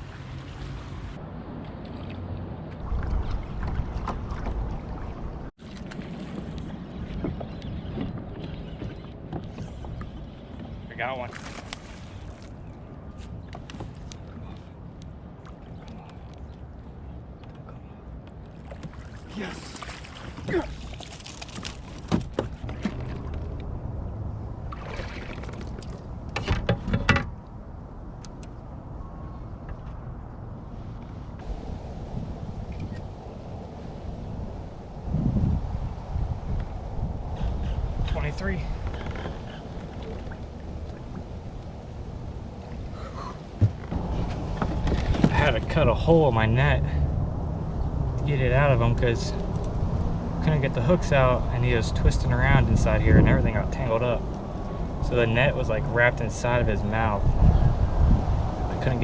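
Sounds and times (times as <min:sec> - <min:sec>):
water against kayak hull: 0:00.0 - 0:27.0, 0:38.6 - 0:45.8
knocks and rattles on a kayak: 0:05.6 - 0:12.1, 0:20.4 - 0:23.7, 0:24.7 - 0:27.4, 0:38.7 - 0:41.4, 0:43.5 - 0:45.8.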